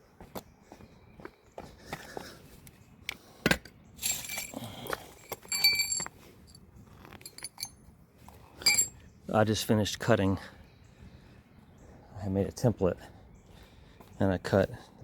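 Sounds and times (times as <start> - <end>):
metallic jingling: 4.0 - 7.9, 8.6 - 9.0.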